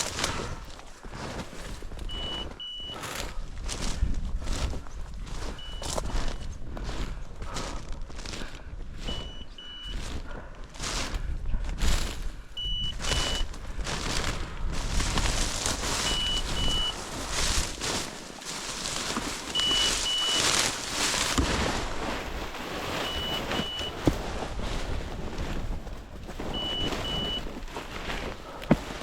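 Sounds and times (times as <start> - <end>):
heavy wind: 0.0 - 29.0
collar beeper double beep: 2.1 - 3.0, 12.6 - 13.4, 26.6 - 27.4
brush noise: 12.9 - 29.0.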